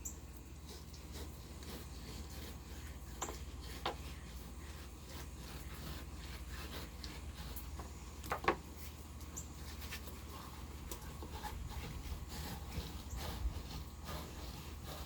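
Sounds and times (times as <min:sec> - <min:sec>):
knife scraping fish skin: 0:00.6 - 0:07.7.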